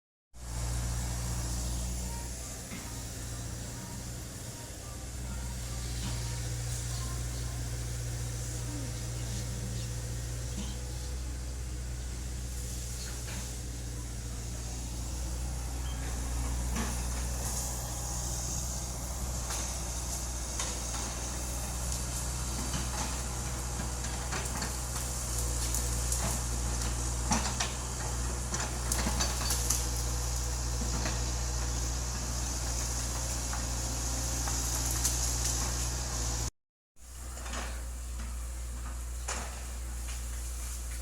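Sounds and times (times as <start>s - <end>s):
excavator diesel engine humming: 0.4s - 36.5s, 37.2s - 41.0s.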